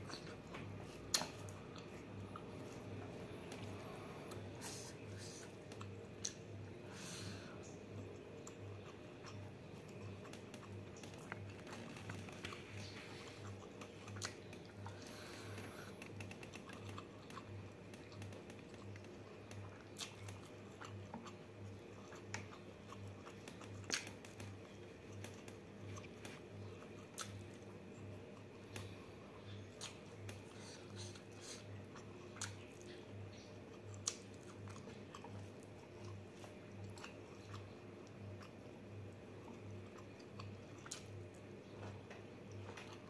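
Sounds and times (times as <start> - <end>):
chewing with mouth smacks: 0.0 - 6.8, 7.6 - 43.0
faint pulsing low hum: 0.0 - 43.0.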